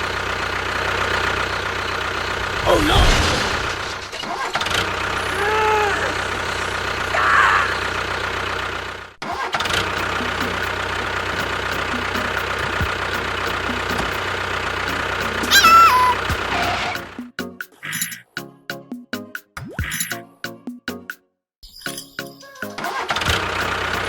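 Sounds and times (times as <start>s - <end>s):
engine running steadily: 0.0s - 17.2s, 23.3s - 24.0s
pitched sound falling in steps: 15.4s - 16.3s.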